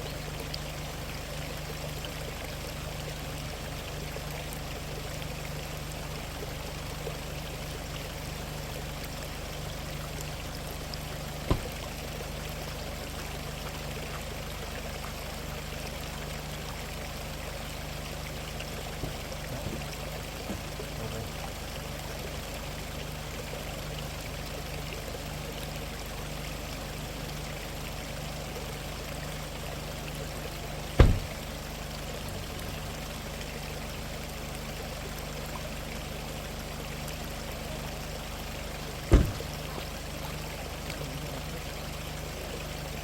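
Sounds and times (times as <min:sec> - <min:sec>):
stream water flowing: 0:00.0 - 0:43.0
sharp knock: 0:11.5 - 0:11.7, 0:31.0 - 0:31.4, 0:39.1 - 0:39.5.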